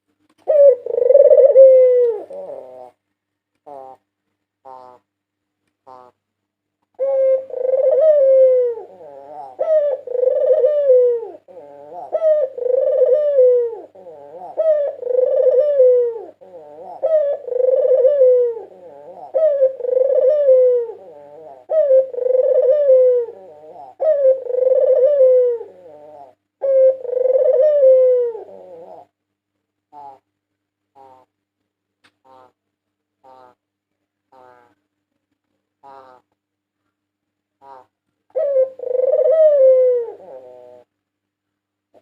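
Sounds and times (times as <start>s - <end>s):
dove cooing: 0.4s - 3.0s, 3.6s - 5.1s, 5.8s - 6.2s, 7.0s - 29.2s, 29.9s - 30.3s, 30.9s - 31.3s, 34.3s - 34.8s, 37.6s - 40.9s.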